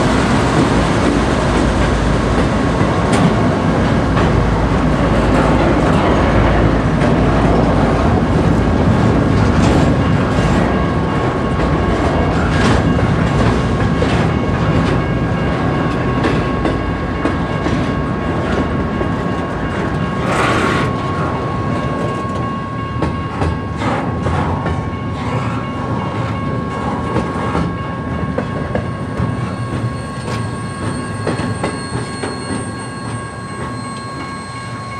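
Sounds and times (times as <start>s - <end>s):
train wheels clacking over rail joints: 0.1s - 21.3s, 22.0s - 34.4s
faint steady ringing tone: 26.6s - 34.9s.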